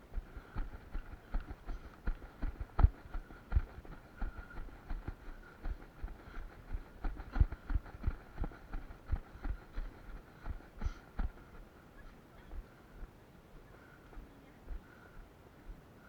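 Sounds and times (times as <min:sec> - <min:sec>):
running footsteps thudding: 0:00.2 - 0:11.5.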